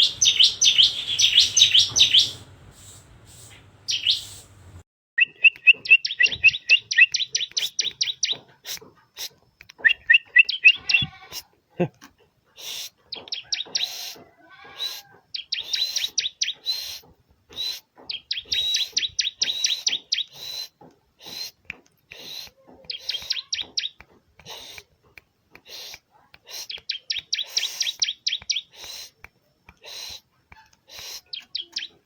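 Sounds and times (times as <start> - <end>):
bird singing high trills: 0.0 - 4.5, 5.2 - 8.4.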